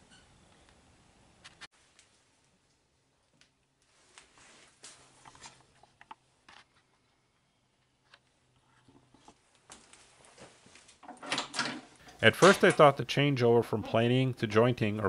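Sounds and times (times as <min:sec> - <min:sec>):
faint small clicks and rustles: 0:01.4 - 0:07.0, 0:07.8 - 0:11.4.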